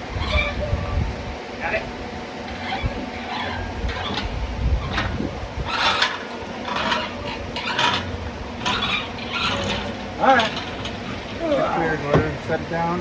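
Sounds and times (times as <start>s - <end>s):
metal clanks and rattles: 2.4s - 12.4s.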